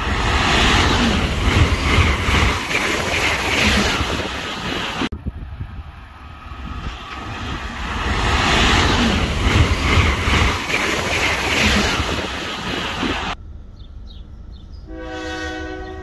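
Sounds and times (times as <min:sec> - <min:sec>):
second train approaching: 0:00.0 - 0:16.0
wind on microphone: 0:00.1 - 0:13.4
diesel locomotive rumble: 0:12.9 - 0:16.0.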